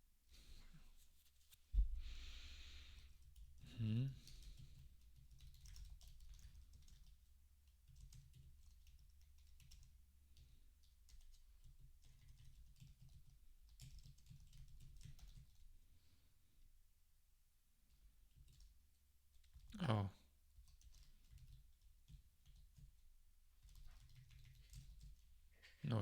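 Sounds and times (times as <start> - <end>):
keyboard typing: 4.1 - 15.6, 18.3 - 19.7, 20.6 - 23.0, 23.6 - 25.3.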